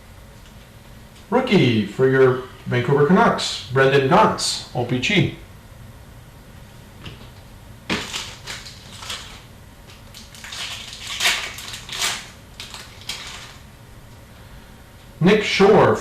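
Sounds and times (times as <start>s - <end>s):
cards and packaging crinkling: 7.9s - 13.6s.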